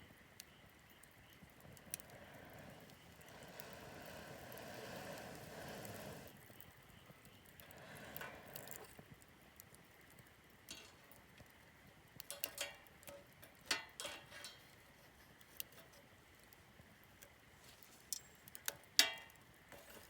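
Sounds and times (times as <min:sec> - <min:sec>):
campfire crackling: 0:00.0 - 0:20.0
sharp fire pops: 0:01.3 - 0:09.0.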